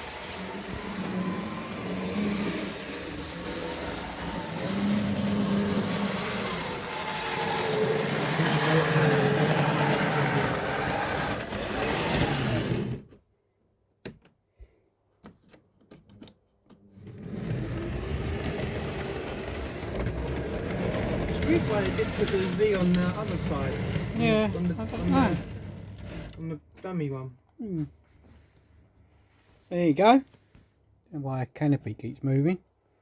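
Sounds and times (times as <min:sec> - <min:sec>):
wheel and track rattle: 0:00.0 - 0:13.0, 0:17.1 - 0:26.4
model train motor whirring: 0:00.0 - 0:13.1, 0:17.1 - 0:26.4.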